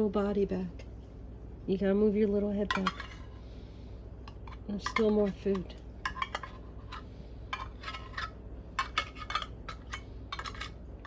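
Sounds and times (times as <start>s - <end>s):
spoon clinking and scraping container: 4.3s - 10.8s.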